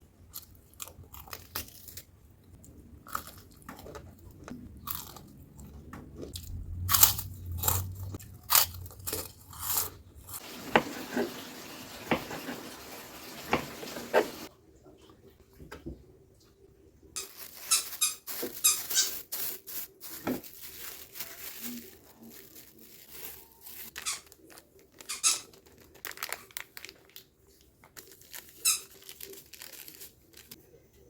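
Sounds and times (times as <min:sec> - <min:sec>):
crunching and chewing fried food: 0:00.1 - 0:11.4, 0:20.6 - 0:30.6.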